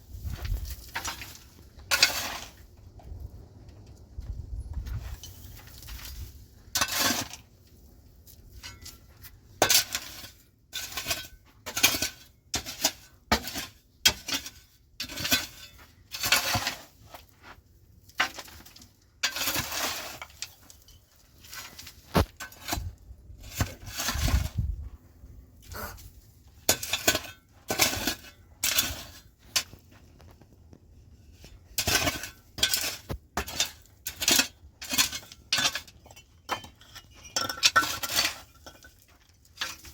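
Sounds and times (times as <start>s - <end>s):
metal dishes clinking and scraping: 31.8s - 39.9s.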